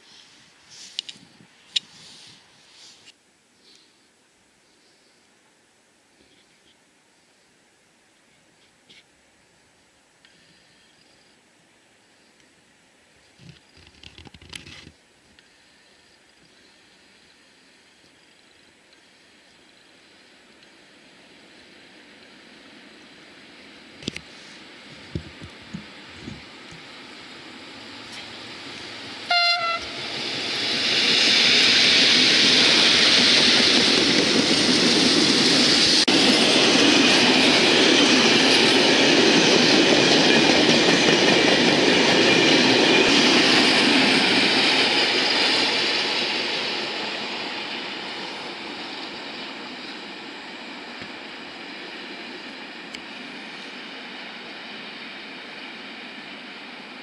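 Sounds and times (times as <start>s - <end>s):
freight train passing: 15.6s - 57.0s
train horn blast: 29.2s - 30.0s.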